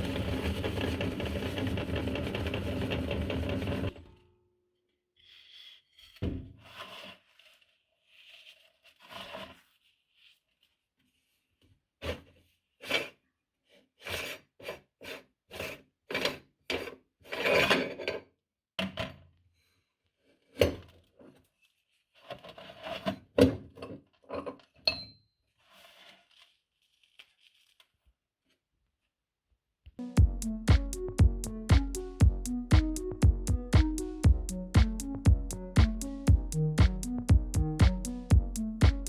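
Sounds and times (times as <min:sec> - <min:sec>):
cookies crunching in meat grinder: 0:00.0 - 0:03.9.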